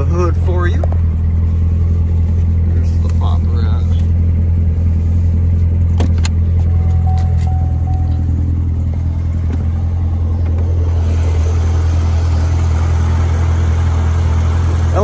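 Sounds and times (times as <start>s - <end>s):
car engine idling: 0.0s - 15.0s
high beeps: 6.7s - 8.7s.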